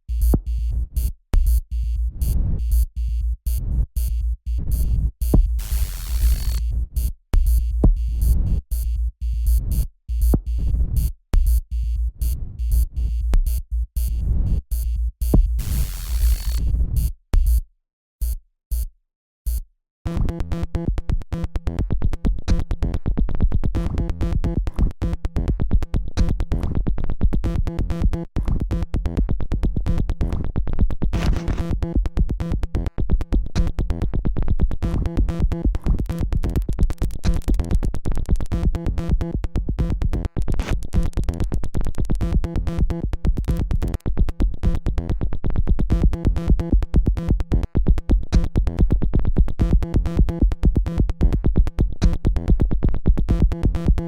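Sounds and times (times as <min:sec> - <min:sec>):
electronic music with drum-machine beat: 0:03.5 - 0:06.7, 0:12.7 - 0:16.7, 0:31.2 - 0:31.9, 0:35.5 - 0:38.9, 0:45.9 - 0:54.0.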